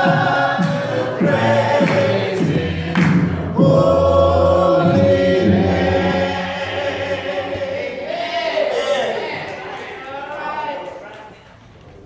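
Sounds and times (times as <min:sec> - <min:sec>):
group of voices singing: 0:00.0 - 0:09.6.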